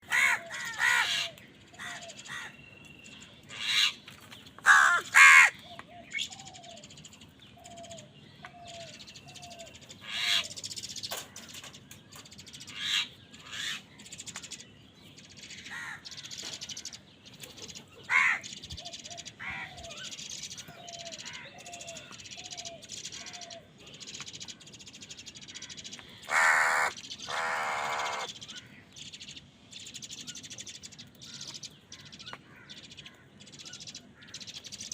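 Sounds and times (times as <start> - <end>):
crows cawing: 0.0 - 2.6, 4.6 - 5.7, 15.7 - 16.3, 18.1 - 18.5, 19.4 - 20.0, 25.5 - 28.7
small bird chirping: 5.6 - 34.9.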